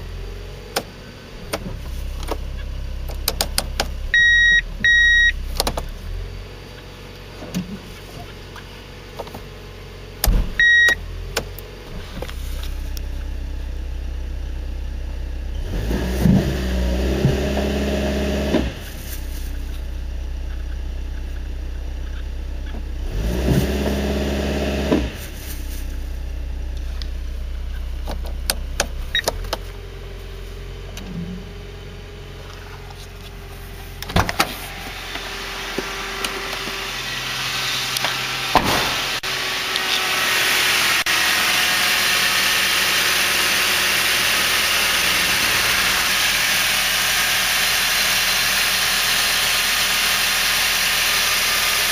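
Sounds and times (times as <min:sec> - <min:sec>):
engine idling and revving: 0:00.0 - 0:51.9
short electronic beeps: 0:04.2 - 0:05.4, 0:10.6 - 0:11.0.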